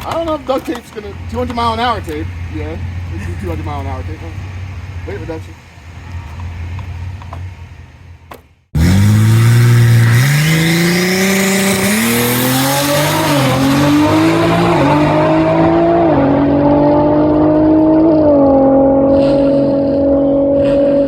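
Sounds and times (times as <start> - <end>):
race car engine accelerating: 8.8 - 21.0.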